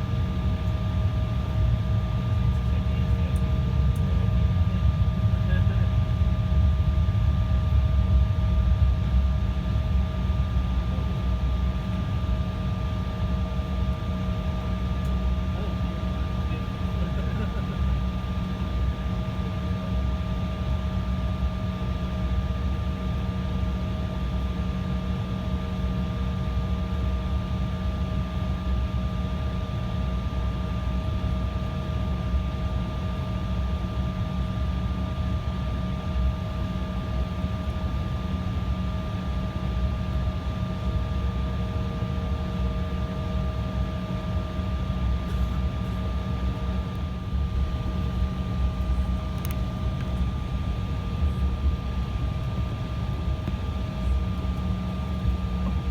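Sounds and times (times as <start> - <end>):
jet engines running: 32.6 - 55.9.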